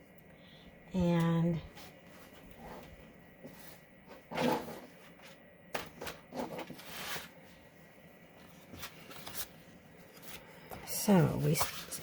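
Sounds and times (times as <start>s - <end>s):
paper rustling: 6.1s - 7.4s, 8.5s - 12.0s.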